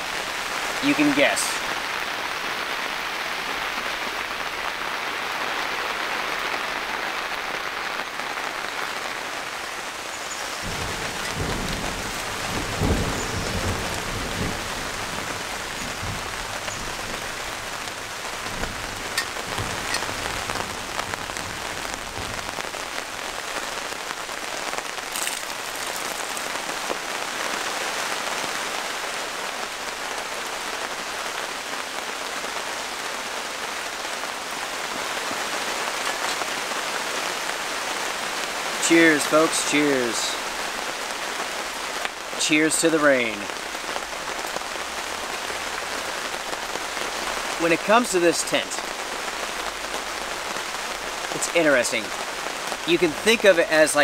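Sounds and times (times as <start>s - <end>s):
heavy rain: 0.0s - 54.0s
low rumble of thunder: 10.6s - 22.8s.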